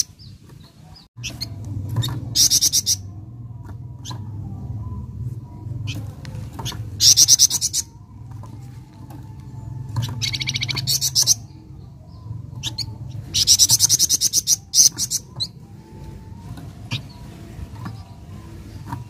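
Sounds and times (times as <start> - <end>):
songbird trilling: 1.2 - 3.1, 6.6 - 8.1, 9.9 - 15.6.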